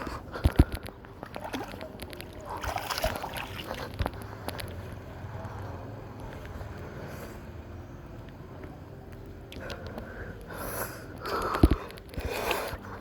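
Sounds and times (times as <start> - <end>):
pool water splashing: 1.2 - 3.9.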